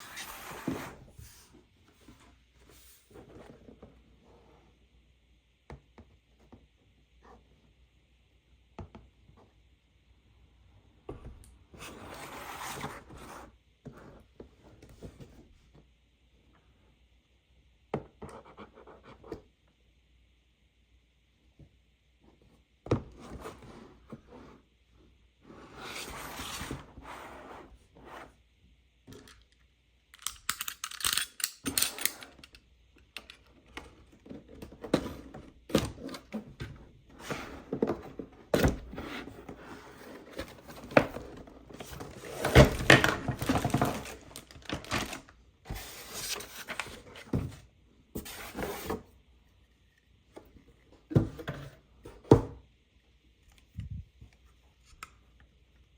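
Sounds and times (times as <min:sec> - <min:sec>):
plastic parts clicking: 0:29.2 - 0:33.4.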